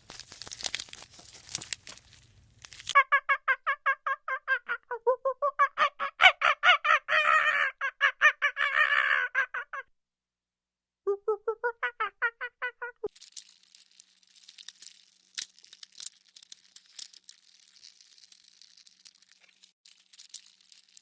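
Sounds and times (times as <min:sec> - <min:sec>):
dry crackling and rustling: 0:00.0 - 0:03.0, 0:13.1 - 0:21.0
animal calling rapidly: 0:05.6 - 0:09.8.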